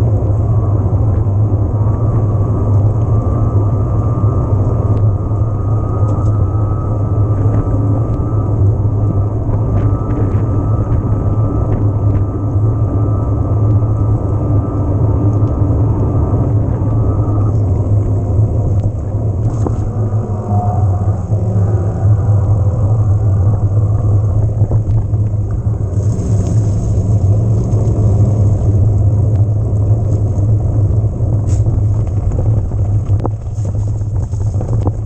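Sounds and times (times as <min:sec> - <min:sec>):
wind rumble on microphone: 0:00.0 - 0:35.0
faint thin whine: 0:00.1 - 0:35.0
bicycle tyre noise: 0:16.6 - 0:35.0.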